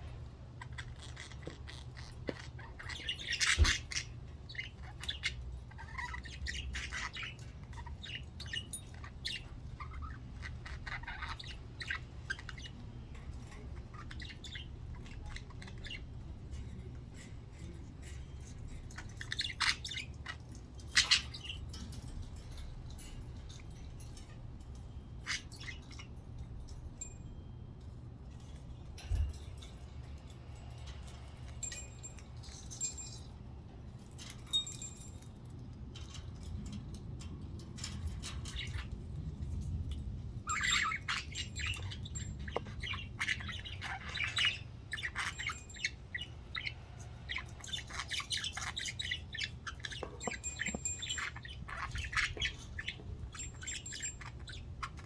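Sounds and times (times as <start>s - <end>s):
budgerigars chirping: 0.6s - 16.5s, 18.0s - 24.4s, 25.1s - 26.2s, 40.3s - 55.0s.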